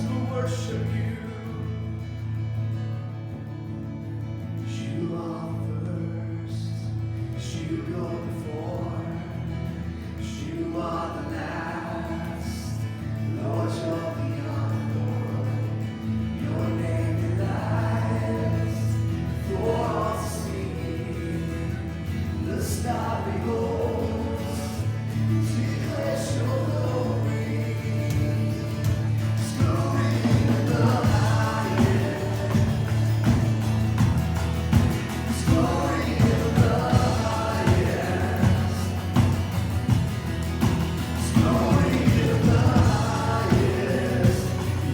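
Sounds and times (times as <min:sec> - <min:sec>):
voices singing worship song: 0:00.0 - 0:01.7, 0:04.6 - 0:44.9
band with held low notes: 0:14.0 - 0:44.9
steady beat: 0:28.9 - 0:44.9.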